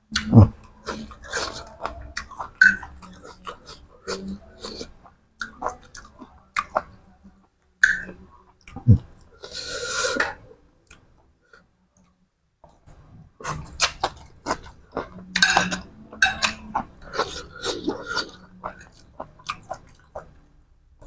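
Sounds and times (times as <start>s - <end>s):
person chewing food: 0.1s - 7.0s, 12.9s - 20.5s.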